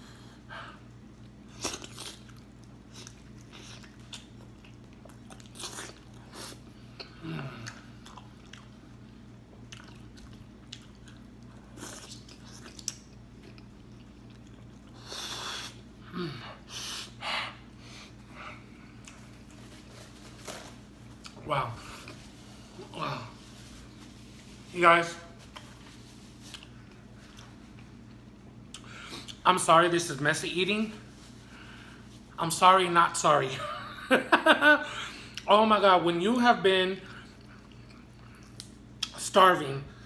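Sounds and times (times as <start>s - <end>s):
person chewing with wet smacks: 1.2s - 15.9s, 18.9s - 19.7s, 25.4s - 29.4s, 37.0s - 39.2s.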